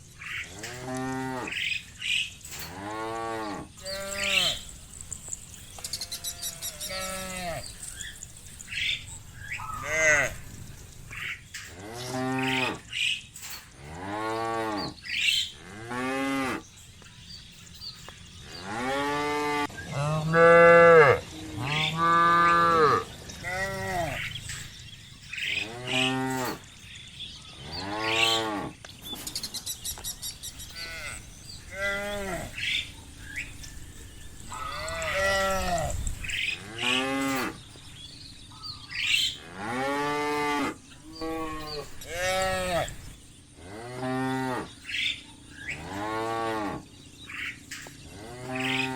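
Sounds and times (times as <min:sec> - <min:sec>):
cows mooing: 0:00.3 - 0:01.7, 0:02.5 - 0:13.0, 0:13.8 - 0:16.6, 0:18.5 - 0:24.6, 0:25.4 - 0:26.7, 0:27.6 - 0:28.9, 0:30.7 - 0:32.9, 0:34.4 - 0:37.7, 0:39.3 - 0:44.8, 0:45.8 - 0:46.9, 0:48.1 - 0:48.9.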